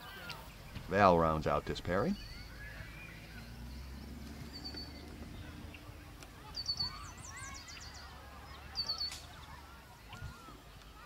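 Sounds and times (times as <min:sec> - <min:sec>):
bird calling high notes: 0:01.9 - 0:09.8.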